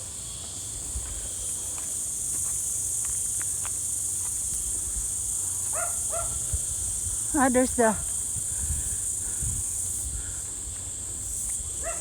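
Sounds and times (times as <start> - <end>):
high-pitched insect chorus: 0.0 - 12.0
wind rumble: 6.2 - 10.5.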